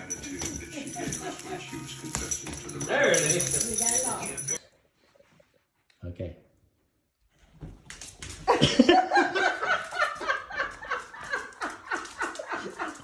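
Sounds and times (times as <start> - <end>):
person laughing hard: 8.5 - 13.0.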